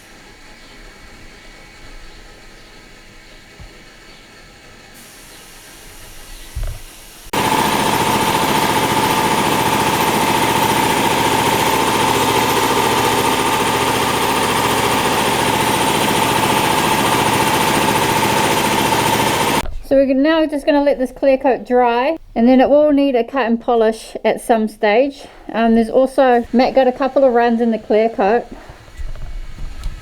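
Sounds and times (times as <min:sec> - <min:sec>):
motor-driven machine humming: 0:05.4 - 0:19.6.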